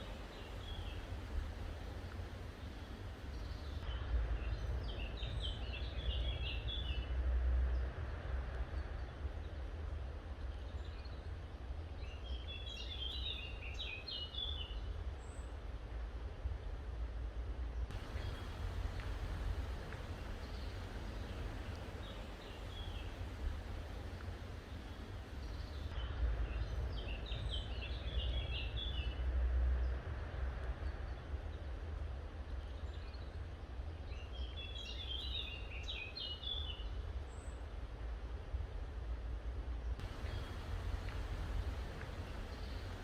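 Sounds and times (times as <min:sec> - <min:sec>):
songbird chirping: 0:00.0 - 0:07.1, 0:17.9 - 0:29.2, 0:32.6 - 0:37.6, 0:40.0 - 0:43.0
steady low rumble: 0:00.0 - 0:10.5, 0:15.7 - 0:34.0, 0:37.9 - 0:43.0.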